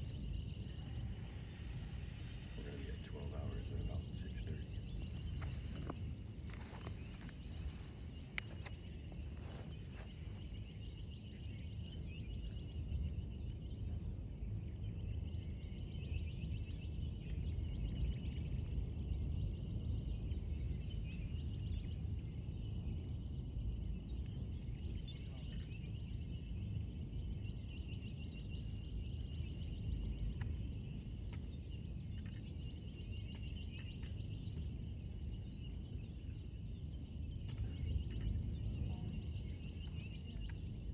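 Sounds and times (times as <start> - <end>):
constant high trill: 0.0 - 4.8
steady low rumble: 0.0 - 16.3, 17.0 - 40.9
birds singing and chirping: 0.0 - 40.9.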